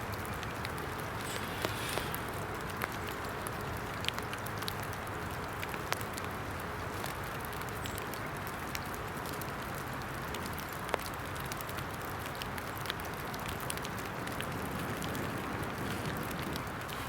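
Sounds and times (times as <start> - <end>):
rain falling: 0.0 - 17.0
small fire crackling and popping: 0.0 - 17.0.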